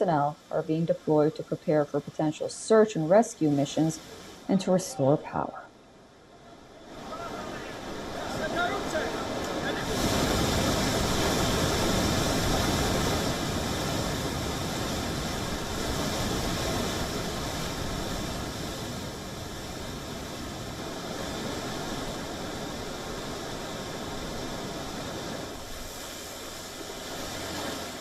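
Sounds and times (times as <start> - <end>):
steady rushing noise: 6.2 - 28.0.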